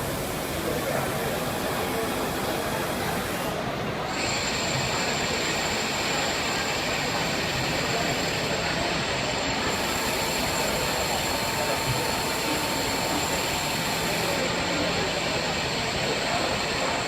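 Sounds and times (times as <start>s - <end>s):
lathe machining noise: 0.0s - 17.0s.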